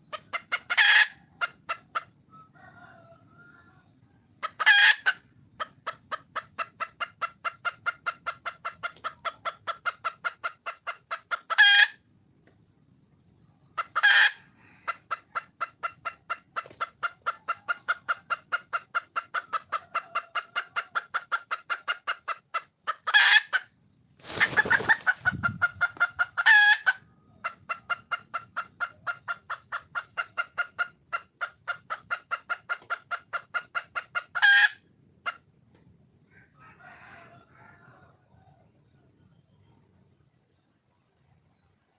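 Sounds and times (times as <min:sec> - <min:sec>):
hen clucking: 0:00.0 - 0:12.6, 0:13.6 - 0:39.3
rustling: 0:24.2 - 0:25.4.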